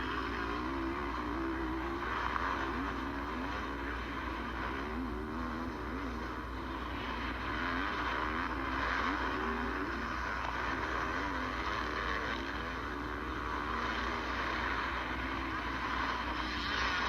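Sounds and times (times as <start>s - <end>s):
motocross bike engine revving: 0.0s - 17.0s.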